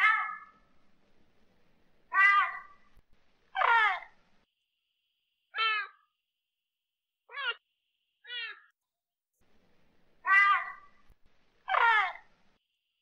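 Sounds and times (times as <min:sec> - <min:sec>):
leopard meowing: 0:02.1 - 0:02.8.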